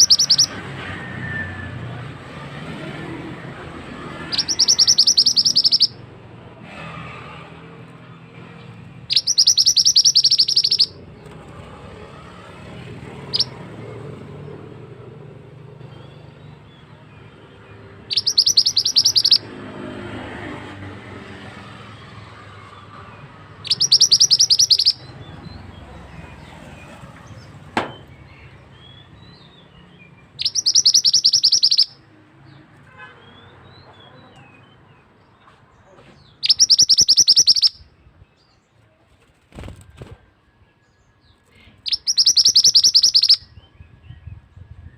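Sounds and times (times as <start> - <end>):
bird singing trilled phrases: 0.0 - 0.6, 4.0 - 6.0, 9.1 - 11.3, 13.2 - 13.6, 17.9 - 19.5, 23.6 - 32.1, 36.3 - 38.7, 41.8 - 44.4.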